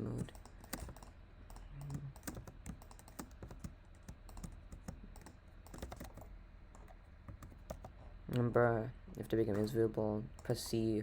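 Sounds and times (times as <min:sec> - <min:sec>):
computer keyboard typing: 0:00.0 - 0:07.9.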